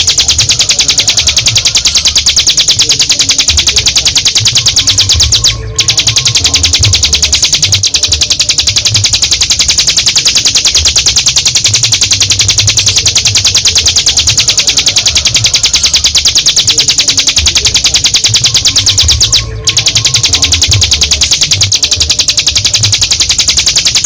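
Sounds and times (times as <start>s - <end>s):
bird singing fast trill: 0.0s - 24.0s.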